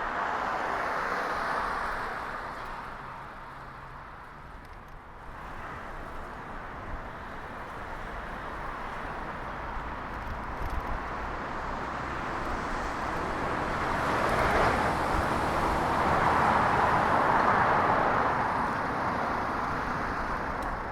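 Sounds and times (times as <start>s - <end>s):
passing cars: 0.0s - 20.9s.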